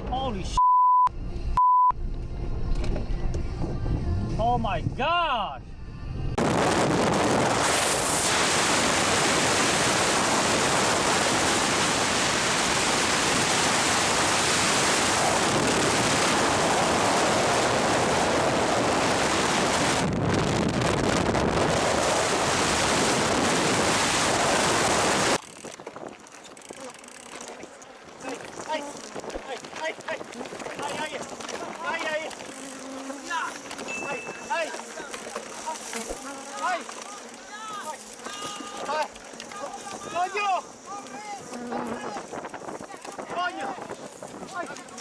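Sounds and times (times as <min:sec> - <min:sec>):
wind buffeting microphone: 0:06.3 - 0:26.8, 0:41.4 - 0:45.0.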